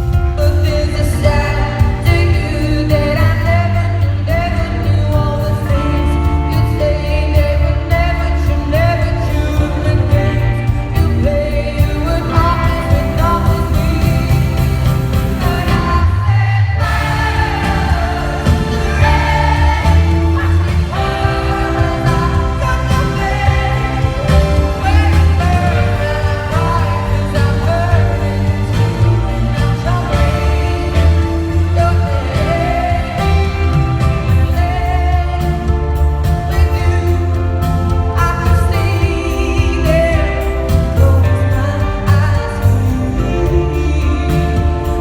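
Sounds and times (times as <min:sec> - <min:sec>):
band with heavy bass: 0:00.0 - 0:45.0
woman singing pop ballad: 0:00.0 - 0:45.0.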